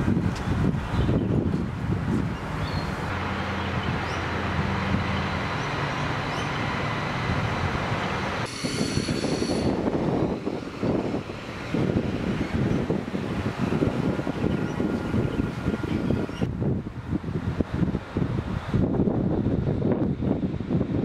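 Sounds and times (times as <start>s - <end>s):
diesel railcar passing: 0.0s - 21.0s
wind buffeting microphone: 0.0s - 21.0s
wheel squeal: 8.5s - 11.0s.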